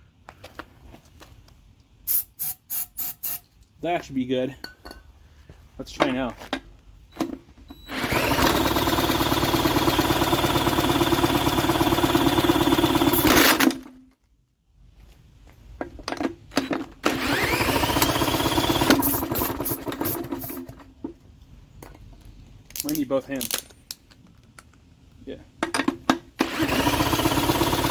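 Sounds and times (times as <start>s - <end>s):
drill whining: 7.8s - 13.7s, 17.1s - 20.7s, 26.4s - 27.9s
engine turning over chugging: 7.9s - 13.8s, 17.0s - 20.9s, 26.4s - 27.9s.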